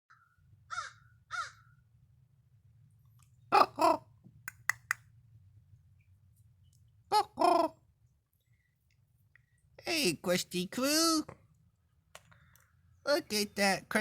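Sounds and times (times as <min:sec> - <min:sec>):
crow cawing: 0:00.1 - 0:01.8
quick sharp clicks: 0:04.5 - 0:05.1.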